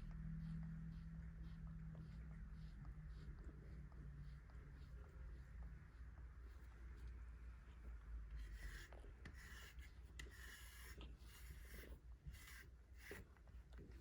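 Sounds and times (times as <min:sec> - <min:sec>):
brush stroking cat fur: 0:00.0 - 0:14.0.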